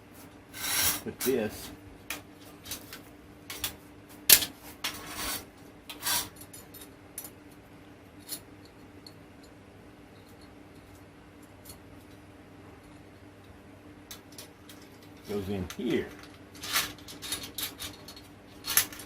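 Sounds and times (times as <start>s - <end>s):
small metal parts clinking: 16.0s - 19.0s.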